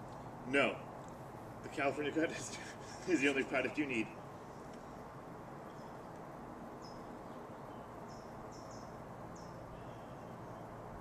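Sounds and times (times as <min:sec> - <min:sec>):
outdoor background hiss: 0:00.0 - 0:11.0
bird chirping: 0:02.4 - 0:10.8.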